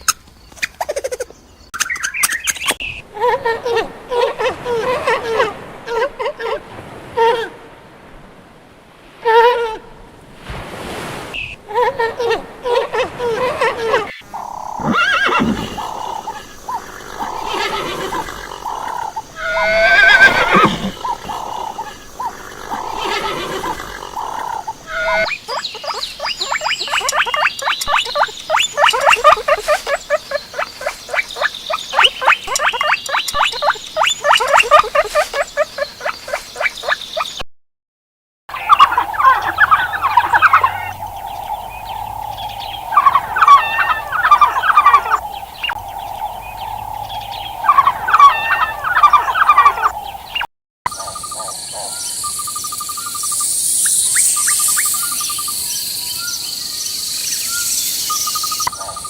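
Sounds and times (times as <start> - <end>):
horse neighing and whinnying: 14.3 - 25.3.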